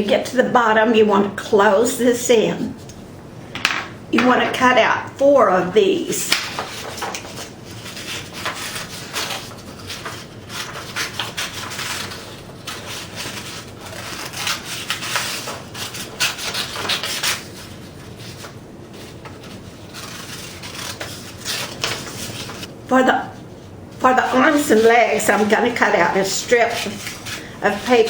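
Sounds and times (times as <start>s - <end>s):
scissors snipping paper: 8.0s - 17.4s, 19.9s - 22.7s.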